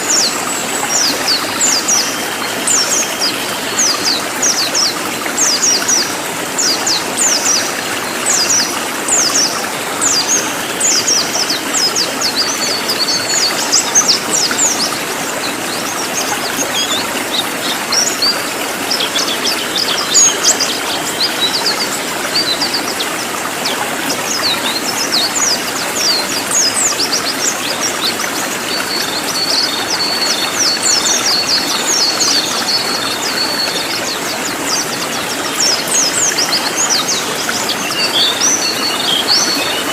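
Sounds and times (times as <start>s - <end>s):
flowing water: 0.0s - 39.9s
songbird singing: 0.0s - 39.9s.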